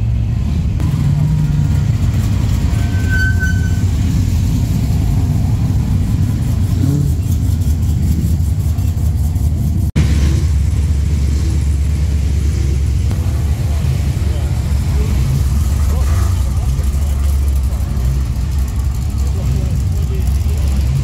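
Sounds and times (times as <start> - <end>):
car engines rumbling: 0.0 - 21.0.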